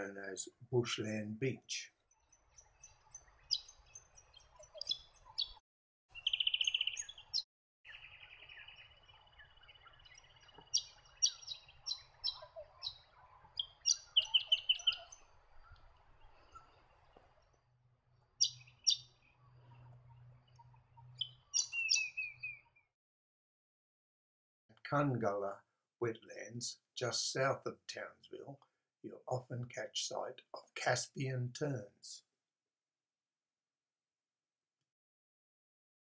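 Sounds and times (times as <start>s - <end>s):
songbirds chipping and trilling: 0.0s - 22.9s.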